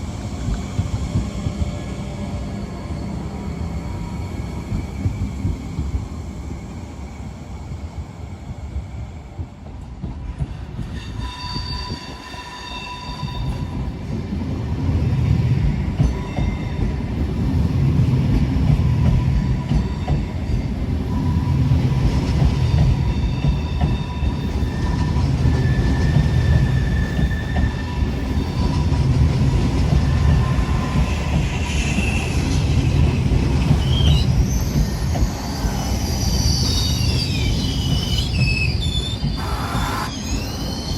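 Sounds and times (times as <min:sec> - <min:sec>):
train rumbling past on rails: 0:00.0 - 0:40.9
high-pitched wheel squeals: 0:10.8 - 0:13.7, 0:33.8 - 0:40.9.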